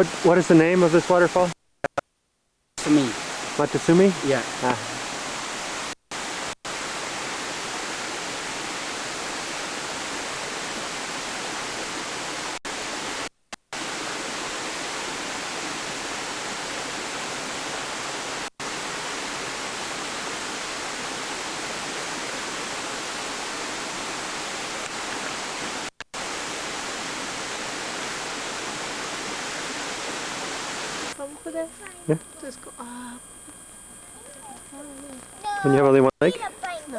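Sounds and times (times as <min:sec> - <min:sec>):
waterfall rushing: 0:00.0 - 0:01.5, 0:02.8 - 0:05.9, 0:06.7 - 0:13.0, 0:13.8 - 0:31.2.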